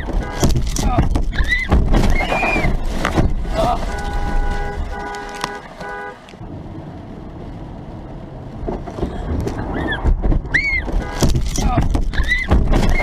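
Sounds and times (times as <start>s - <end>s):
car horn honking: 0.0s - 6.4s, 10.8s - 13.0s
traffic road noise: 0.0s - 13.0s.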